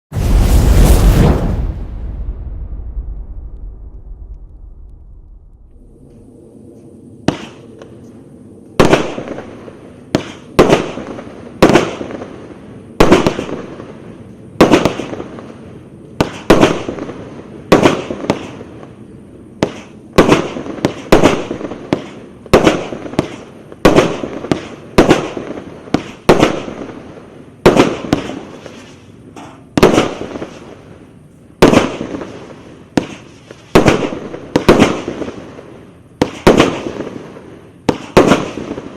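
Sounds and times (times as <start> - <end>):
firework shots banging and crackling: 7.2 - 7.9, 8.8 - 18.9, 19.6 - 30.9, 31.6 - 38.9.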